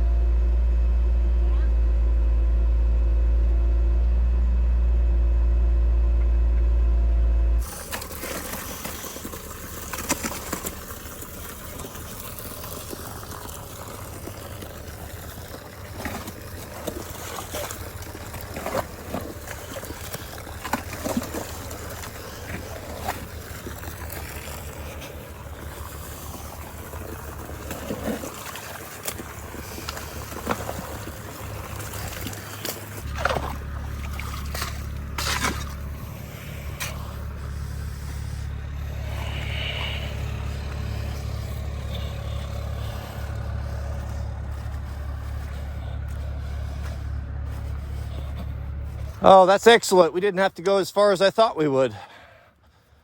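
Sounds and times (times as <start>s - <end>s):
distant excavator engine running: 0.0s - 53.0s
bucket scraping and knocking: 7.6s - 36.2s.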